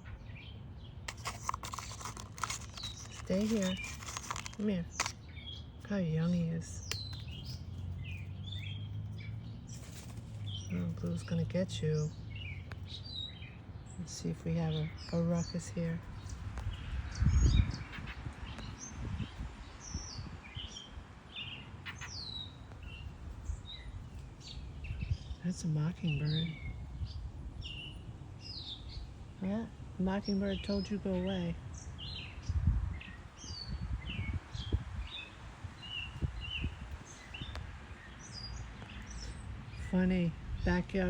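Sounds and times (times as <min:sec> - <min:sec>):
birds chirping: 0:00.0 - 0:41.0
low rumble on microphone: 0:04.8 - 0:21.1, 0:32.1 - 0:41.0
microphone rumble: 0:15.0 - 0:20.4.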